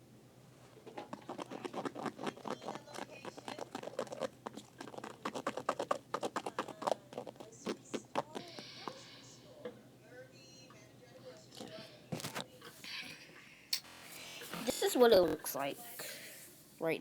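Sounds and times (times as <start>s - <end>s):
slime squishing and clicking: 0.8s - 8.6s.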